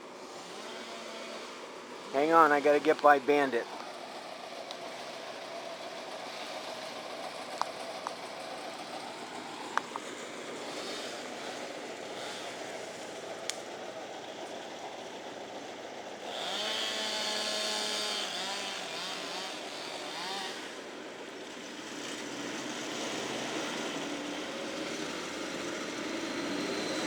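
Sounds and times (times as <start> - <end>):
distant chainsaw revving: 0.0 - 7.5, 10.5 - 13.7, 16.2 - 20.9, 21.9 - 27.0.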